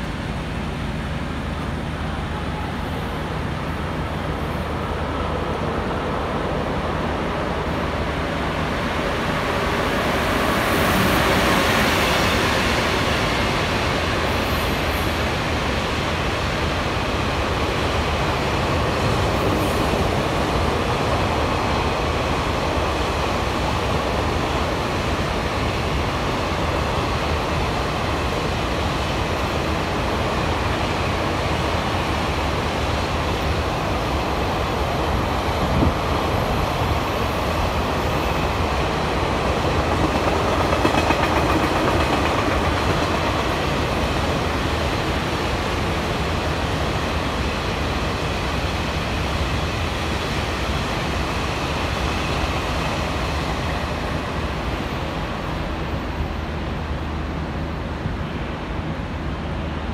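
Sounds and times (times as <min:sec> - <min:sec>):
train wheels running on rail: 0:00.0 - 0:59.9.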